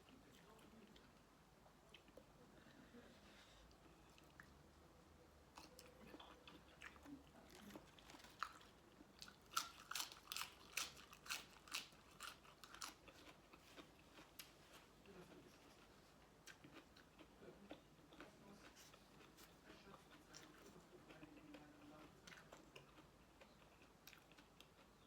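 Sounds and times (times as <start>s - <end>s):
crunchy chewing: 5.5s - 25.0s.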